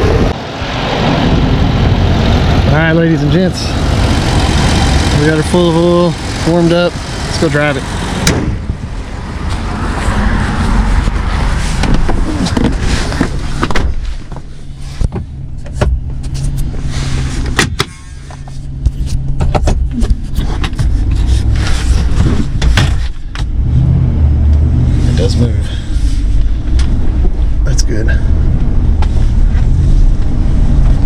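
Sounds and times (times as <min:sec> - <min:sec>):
truck engine humming: 0:00.0 - 0:19.4.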